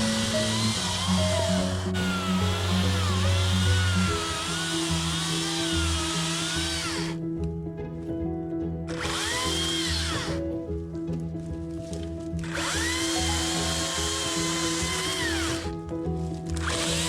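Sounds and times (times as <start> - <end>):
chainsaw revving: 0.0 - 7.2, 8.9 - 10.4, 12.4 - 15.8, 16.6 - 17.0
music with held notes: 0.0 - 17.0.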